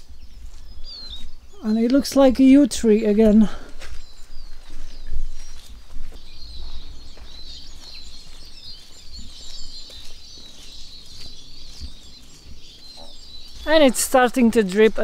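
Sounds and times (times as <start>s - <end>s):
small birds chirping and twittering: 0.0s - 15.0s.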